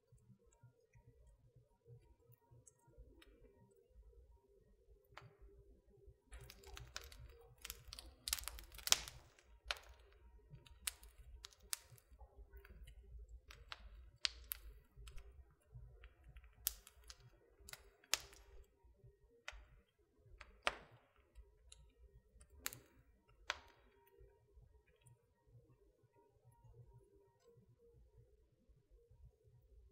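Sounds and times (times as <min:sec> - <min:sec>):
wood fire crackling: 0:06.2 - 0:25.1.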